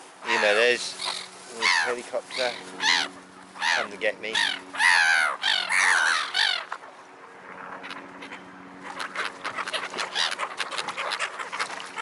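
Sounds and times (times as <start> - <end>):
distant helicopter hum: 0.1 - 12.0
gull crying: 2.8 - 6.7
squawks and duck quacks: 7.8 - 12.0.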